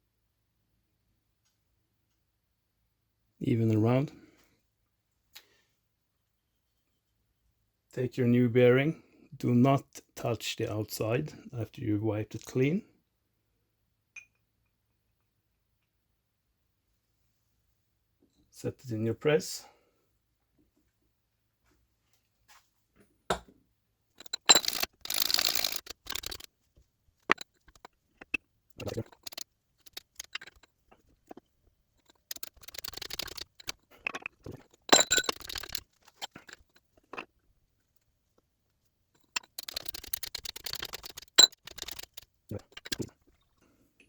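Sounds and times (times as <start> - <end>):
metal clicks clinks and scraping: 24.2 - 26.5, 27.2 - 37.3, 39.2 - 43.4.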